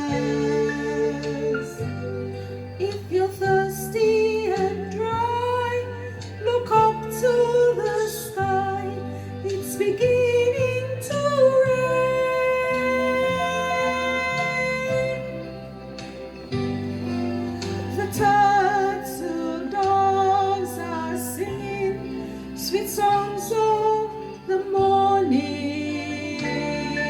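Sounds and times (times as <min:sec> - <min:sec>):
woman singing long held notes: 0:00.0 - 0:15.5
instrumental accompaniment: 0:00.0 - 0:27.0.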